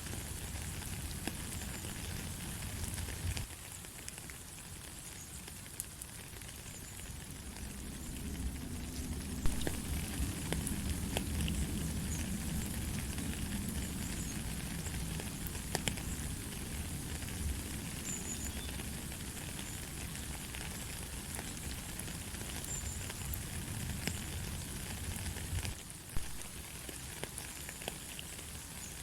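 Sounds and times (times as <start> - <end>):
light rain hiss: 0.0 - 29.0
raindrops ticking: 0.0 - 29.0.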